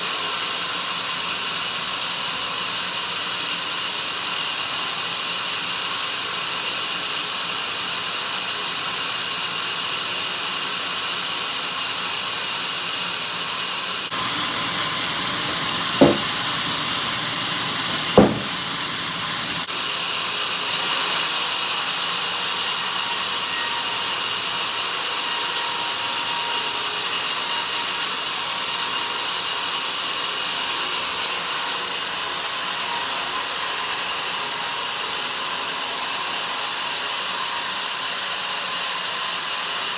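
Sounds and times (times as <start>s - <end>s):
band saw cutting a log: 14.1s - 19.7s
sharp knocks: 14.2s - 19.7s.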